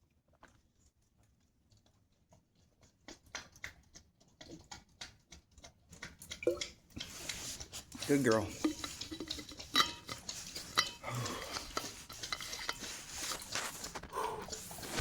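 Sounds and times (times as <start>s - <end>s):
dog lapping water: 2.6s - 15.0s.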